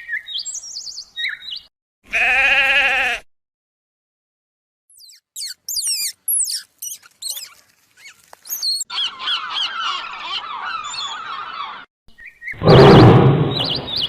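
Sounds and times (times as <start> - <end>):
high-pitched animal chirps: 4.9 - 10.0
chorus of chirping calls: 4.9 - 14.0.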